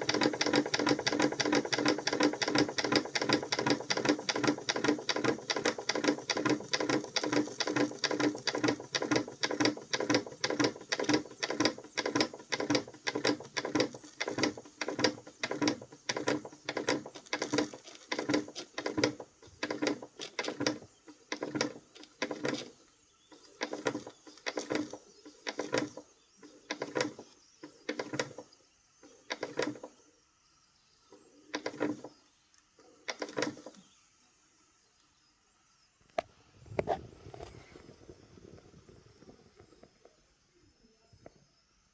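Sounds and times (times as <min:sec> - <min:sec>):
model steam engine chuffing: 0:00.0 - 0:22.5.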